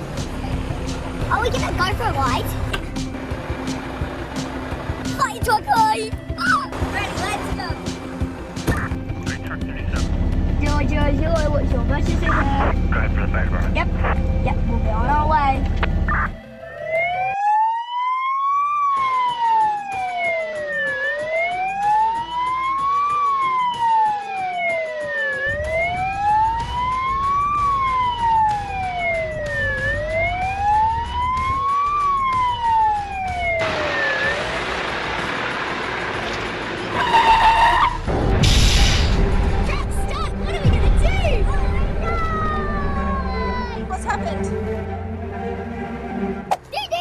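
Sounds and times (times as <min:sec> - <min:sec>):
fire truck siren wailing: 0:12.2 - 0:38.6, 0:39.5 - 0:46.5.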